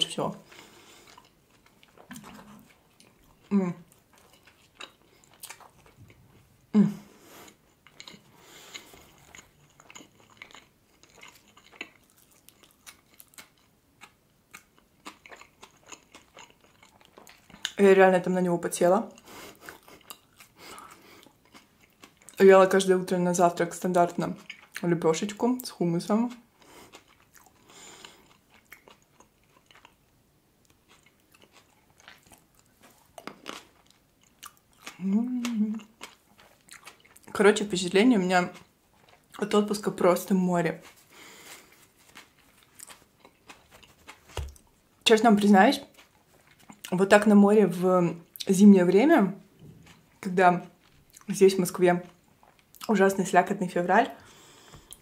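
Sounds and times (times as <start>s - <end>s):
chewing with wet mouth clicks: 1.0s - 6.4s, 7.5s - 17.8s, 19.1s - 22.4s, 24.4s - 24.8s, 26.3s - 30.0s, 30.6s - 37.4s
person humming mm: 6.7s - 7.2s, 35.0s - 35.8s.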